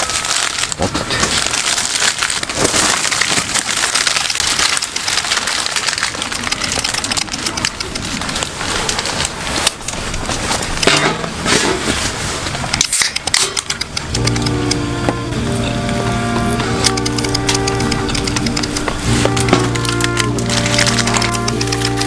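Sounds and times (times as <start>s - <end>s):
heavy rain pouring: 0.0s - 12.8s, 13.9s - 22.0s.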